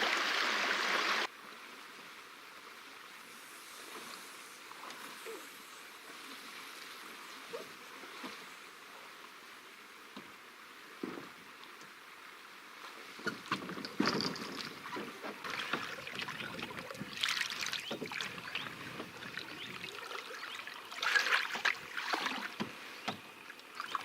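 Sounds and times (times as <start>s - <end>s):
paddle strokes splashing: 15.0s - 24.0s.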